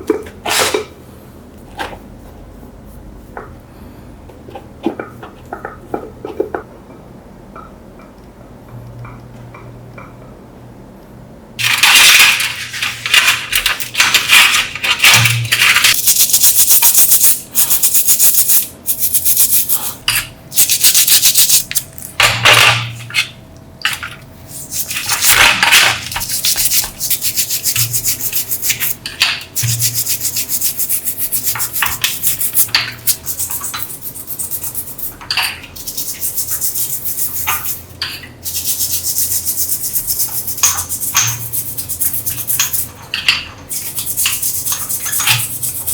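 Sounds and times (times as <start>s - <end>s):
sanding strokes: 15.9s - 20.0s, 26.1s - 29.0s, 29.6s - 35.2s, 35.8s - 37.9s, 38.5s - 42.9s, 43.7s - 45.9s.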